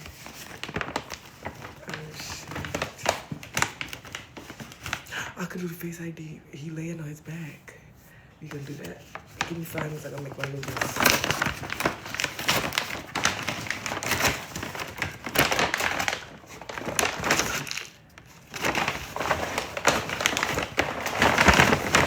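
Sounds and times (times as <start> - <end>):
plastic packaging crinkling: 0.0 - 5.7, 8.4 - 22.0.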